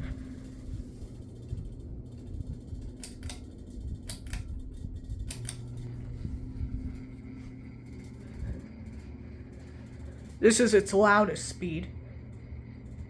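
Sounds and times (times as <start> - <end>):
ceiling fan motor hum: 0.0 - 13.0
sharp clicks: 3.0 - 4.6, 5.2 - 5.9.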